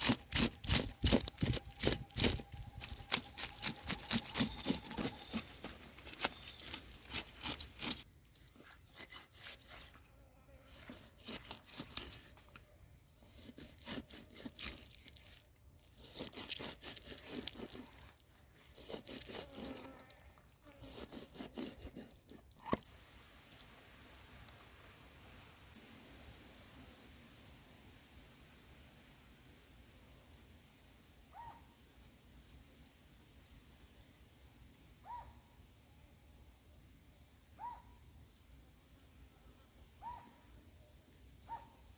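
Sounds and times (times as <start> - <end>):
scraping and rubbing strokes: 0.0 - 22.8.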